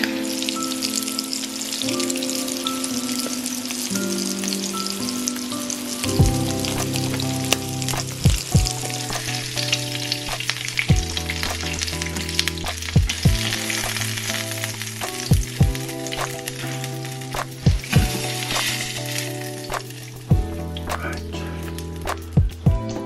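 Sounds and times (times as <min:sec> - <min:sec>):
fritters sizzling in oil: 0:05.8 - 0:20.3.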